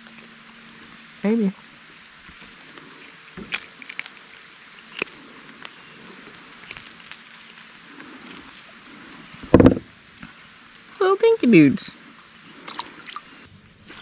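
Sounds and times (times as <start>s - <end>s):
fishing tackle clicking and rattling: 2.3s - 9.8s
loud low thump: 9.5s - 9.9s.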